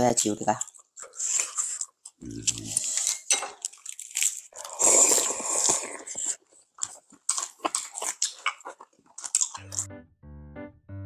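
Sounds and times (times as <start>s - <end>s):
crunching and chewing lettuce: 0.1s - 9.9s.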